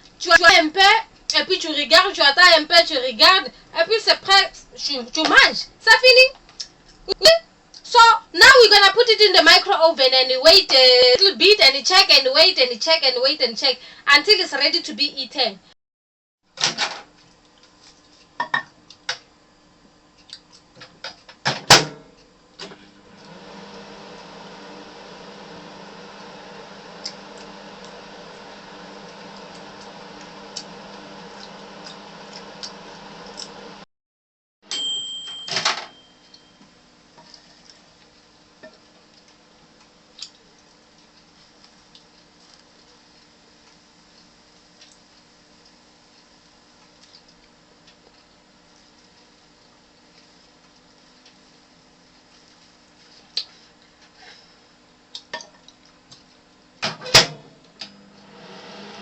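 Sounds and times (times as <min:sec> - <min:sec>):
microwave oven humming: 0:20.7 - 0:33.9, 0:34.7 - 0:59.0.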